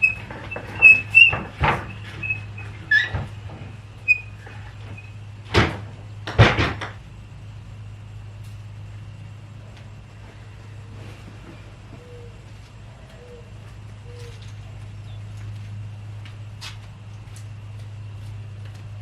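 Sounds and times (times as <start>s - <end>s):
short high squeaks: 0.0s - 5.2s
knocks and clatters: 0.0s - 7.0s.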